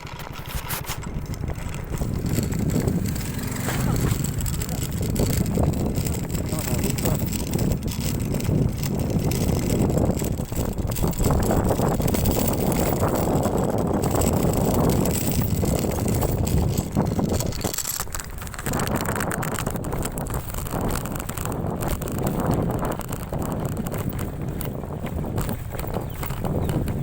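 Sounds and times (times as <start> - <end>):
scooter engine running: 0.0 - 27.0
wind noise on microphone: 0.0 - 27.0.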